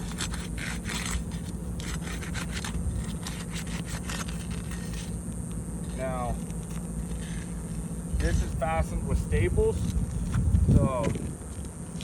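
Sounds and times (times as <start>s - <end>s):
roof shingles scraping and crackling: 0.0s - 5.2s.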